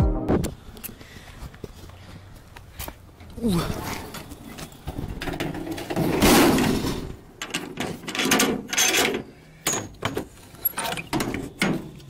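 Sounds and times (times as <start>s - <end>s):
knocks and clunks: 4.1s - 12.0s.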